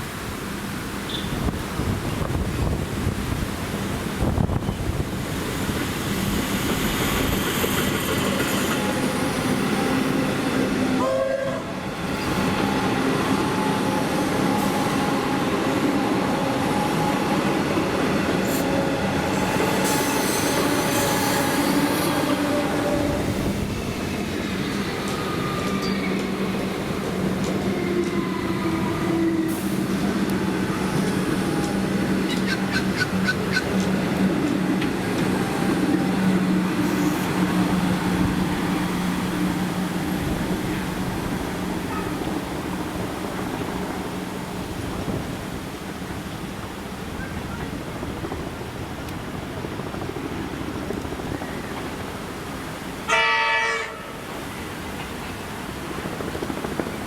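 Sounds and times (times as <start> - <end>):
train hum with whining tones: 0.0 - 57.0.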